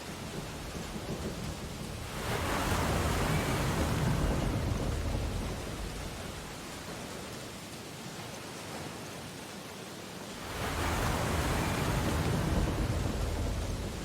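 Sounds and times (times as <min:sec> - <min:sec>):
steady hiss of surf: 0:00.0 - 0:14.0
ocean wave breaking on beach: 0:01.8 - 0:07.1, 0:10.3 - 0:14.0.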